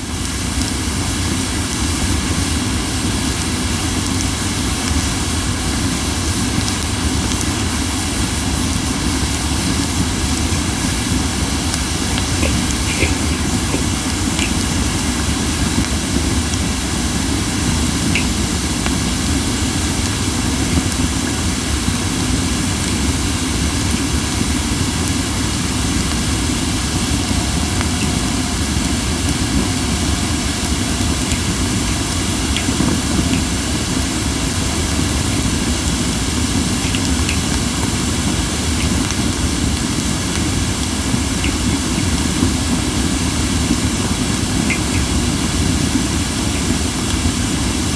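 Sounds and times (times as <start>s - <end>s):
campfire wood hissing: 0.0s - 47.9s
faint fire pops: 8.6s - 16.7s.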